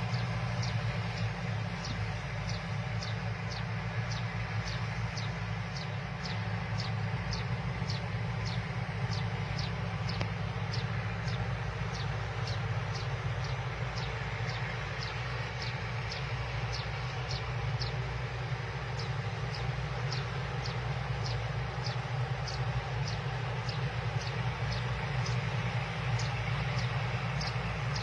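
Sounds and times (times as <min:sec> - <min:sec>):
combine harvester engine drone: 0:00.0 - 0:28.0.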